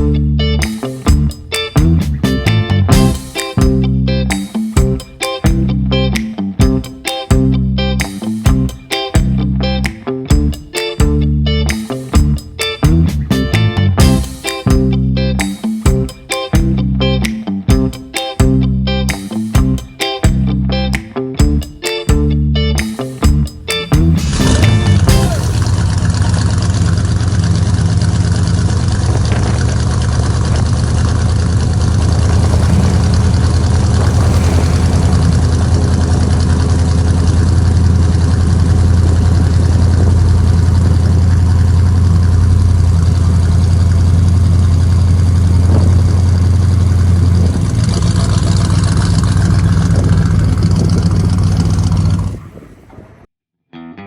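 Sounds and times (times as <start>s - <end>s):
car engine idling: 24.2s - 52.4s.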